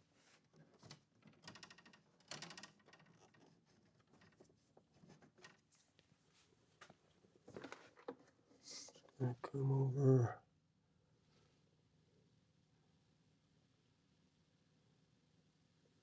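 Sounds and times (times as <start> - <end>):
light clicks and rustles: 0.3 - 9.2.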